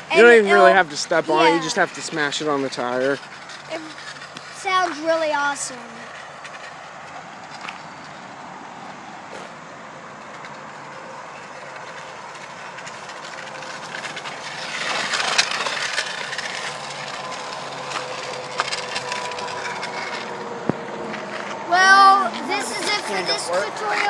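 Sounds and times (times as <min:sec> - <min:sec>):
can clattering against bicycle tyre: 0:11.6 - 0:21.5.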